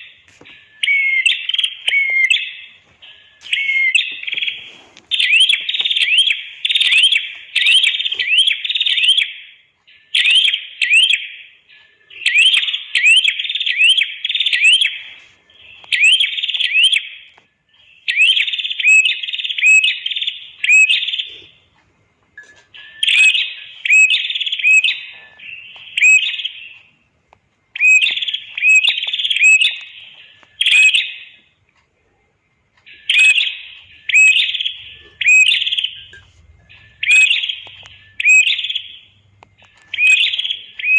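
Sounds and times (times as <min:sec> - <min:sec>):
bird singing sharp chirps: 0:36.8 - 0:39.2.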